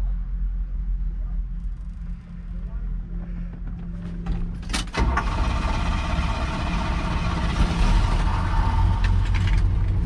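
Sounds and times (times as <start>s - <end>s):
car engine starting and running: 4.0s - 10.0s.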